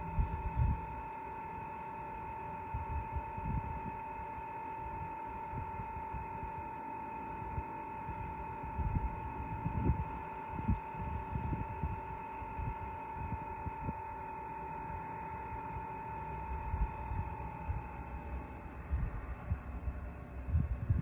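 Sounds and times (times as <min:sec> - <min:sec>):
heater blower fan whine: 0:00.0 - 0:21.0
dull low pump thumps: 0:16.6 - 0:21.0.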